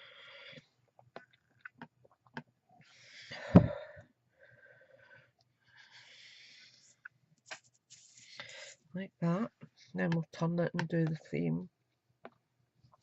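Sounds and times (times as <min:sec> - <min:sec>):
soft breathing: 0:00.0 - 0:00.8, 0:02.8 - 0:07.2, 0:07.9 - 0:08.9.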